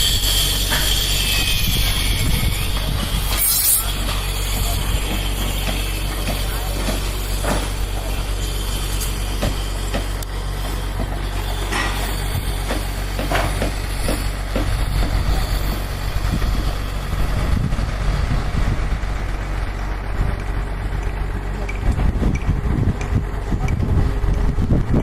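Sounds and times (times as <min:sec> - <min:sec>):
engine humming steadily: 0:00.0 - 0:25.0
knocks and clatter: 0:05.0 - 0:07.9, 0:09.3 - 0:15.2.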